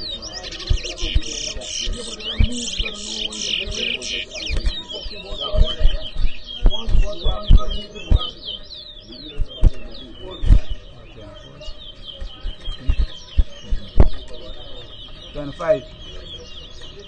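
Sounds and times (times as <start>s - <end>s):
finches singing: 0.0s - 17.0s
sharp low thumps: 0.5s - 4.9s, 5.5s - 8.4s.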